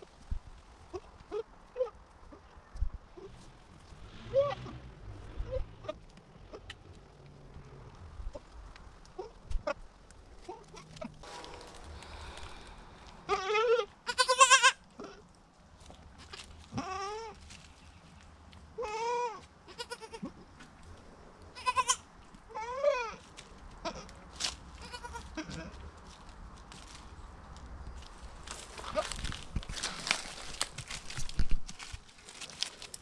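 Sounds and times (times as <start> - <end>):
goats bleating: 13.2 - 15.2, 24.8 - 25.8.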